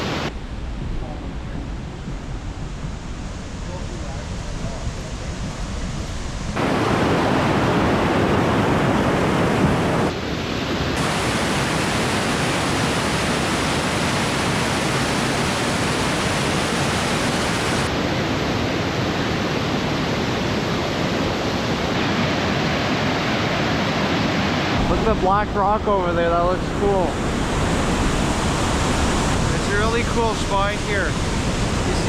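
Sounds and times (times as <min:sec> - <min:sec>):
waterfall rushing: 0:06.6 - 0:10.1, 0:10.9 - 0:17.9.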